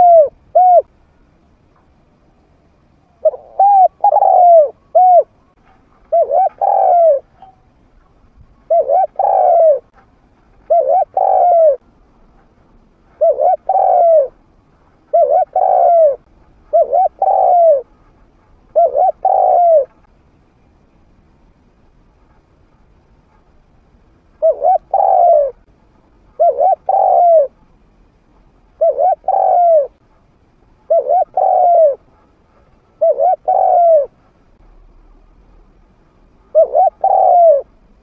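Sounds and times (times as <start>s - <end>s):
dove cooing: 0.0s - 0.9s, 3.1s - 7.5s, 8.6s - 9.9s, 10.6s - 11.8s, 13.1s - 14.4s, 15.1s - 18.0s, 18.7s - 20.1s, 24.4s - 25.6s, 26.4s - 27.6s, 28.8s - 30.0s, 30.9s - 34.2s, 36.5s - 37.8s.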